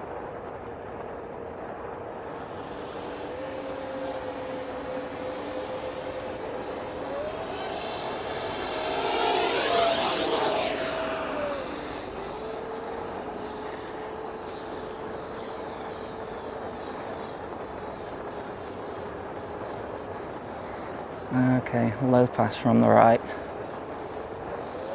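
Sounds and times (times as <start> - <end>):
electric ducted-fan jet whine: 1.3 - 17.8.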